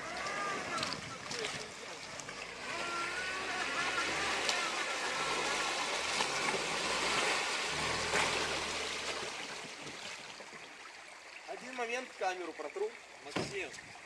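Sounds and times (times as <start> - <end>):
car engine running at low revs: 0.0 - 9.3
water rushing: 0.0 - 14.0.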